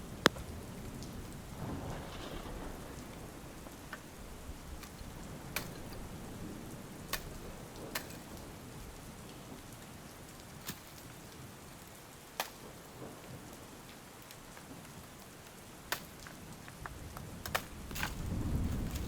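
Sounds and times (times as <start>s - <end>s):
low thunder rumble: 0.0s - 9.3s, 16.9s - 19.0s
steady rain: 0.0s - 19.0s.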